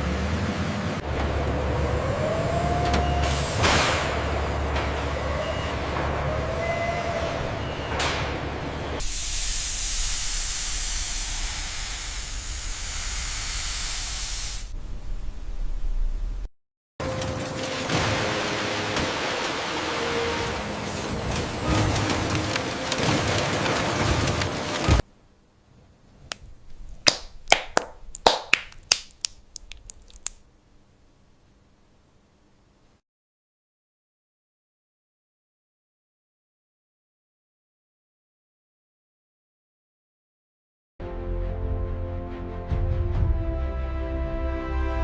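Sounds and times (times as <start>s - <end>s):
loud spray-like hiss: 9.0s - 14.7s
low rumble: 14.6s - 16.5s
sharp clicks or snaps: 26.3s - 30.4s.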